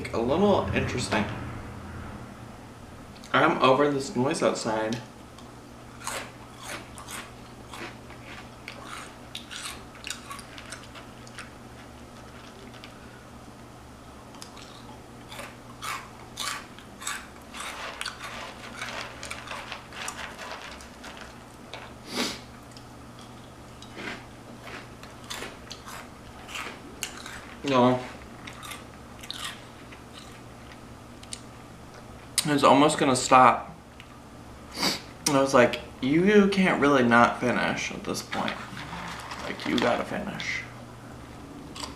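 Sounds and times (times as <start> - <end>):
faint low hum: 0.0 - 41.9
crunching and chewing snacks: 5.9 - 13.2, 14.3 - 22.0, 22.6 - 31.5, 38.4 - 40.1.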